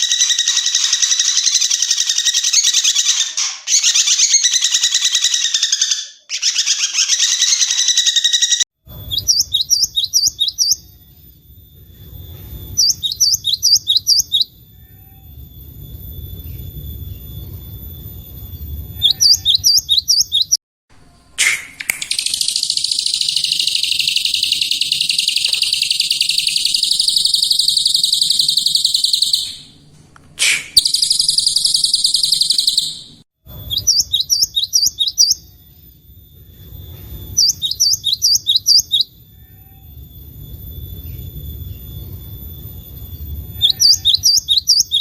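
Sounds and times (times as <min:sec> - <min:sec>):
bird buzzing trill: 0:22.1 - 0:29.7.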